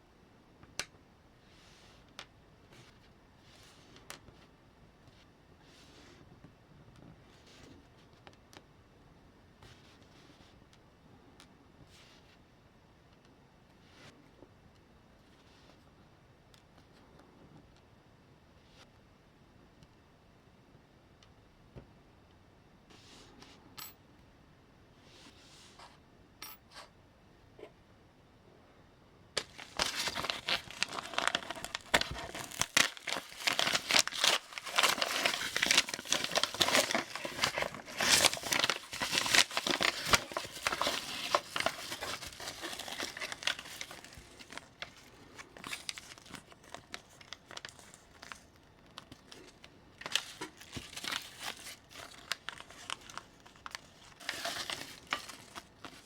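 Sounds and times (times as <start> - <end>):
scratching and crinkling: 29.4 - 56.0.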